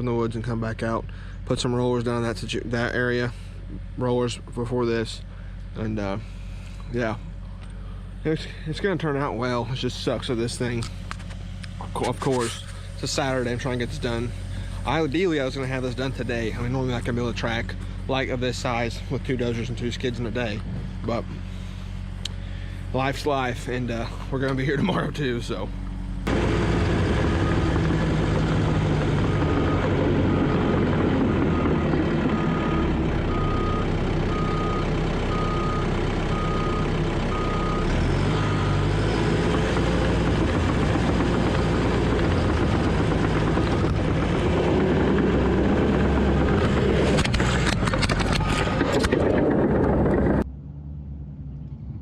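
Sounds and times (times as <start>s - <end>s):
heavy machine diesel engine: 0.0s - 52.0s
reverse alarm beeping: 31.5s - 39.0s.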